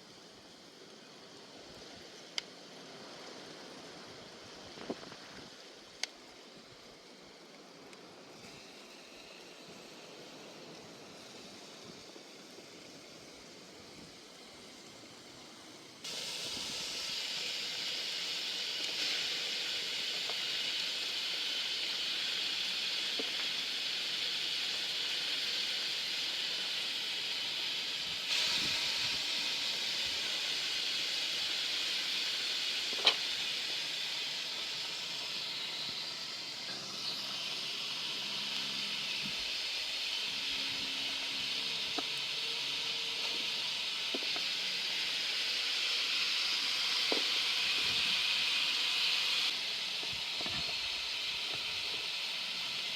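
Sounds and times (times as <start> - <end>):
meat sizzling in a pan: 16.0 - 52.9.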